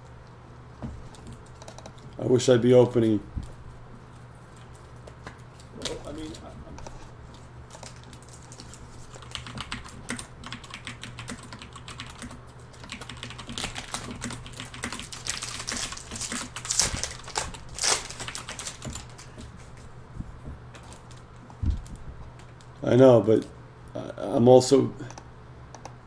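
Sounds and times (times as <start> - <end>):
keyboard typing: 1.1 - 2.1, 4.6 - 19.7, 20.7 - 22.7.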